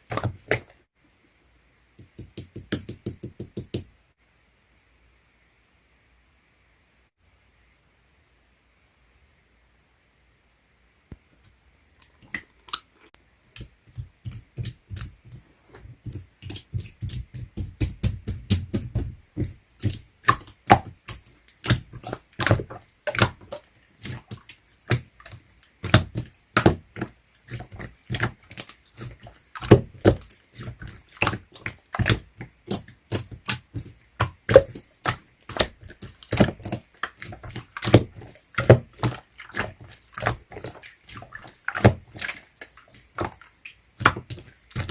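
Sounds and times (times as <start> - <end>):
slime squished by hand: 13.5 - 44.9.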